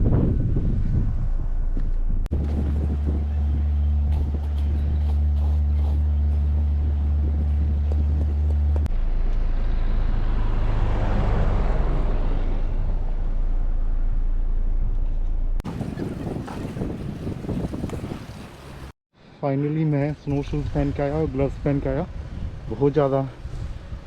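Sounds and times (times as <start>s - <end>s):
car engine humming: 2.3s - 11.1s.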